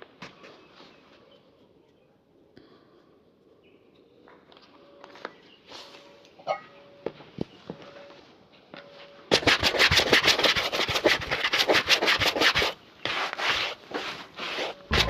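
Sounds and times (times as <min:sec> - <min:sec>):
shoe being buffed: 0:09.3 - 0:15.0.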